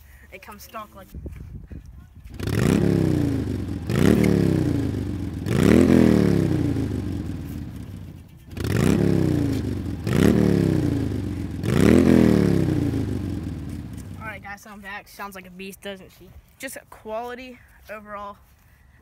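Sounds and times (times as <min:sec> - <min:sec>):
truck engine revving: 0:02.4 - 0:14.2.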